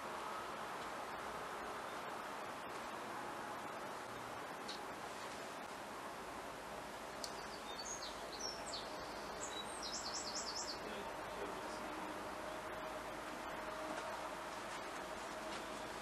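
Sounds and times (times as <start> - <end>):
background hiss: 0.0 - 16.0
high bird chirps: 7.3 - 10.8.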